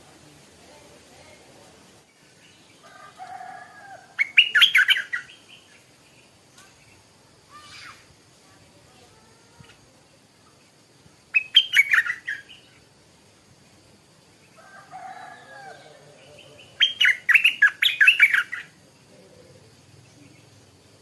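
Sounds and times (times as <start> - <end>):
bulbul singing: 4.0 - 8.0, 10.4 - 12.9, 15.4 - 21.0.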